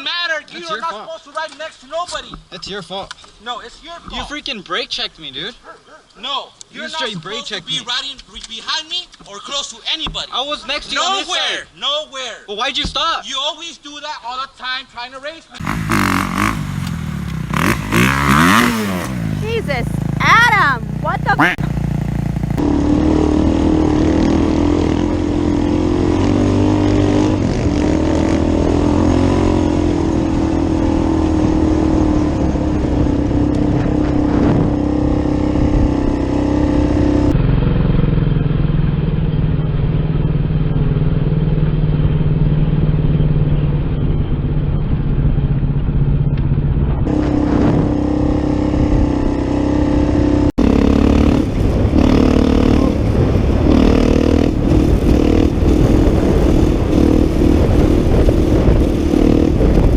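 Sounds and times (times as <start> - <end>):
quad bike engine running: 15.6 - 59.9.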